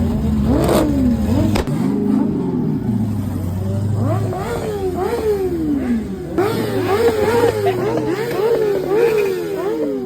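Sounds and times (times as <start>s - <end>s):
engine revving: 0.0s - 10.0s
sharp crack: 1.5s - 1.8s.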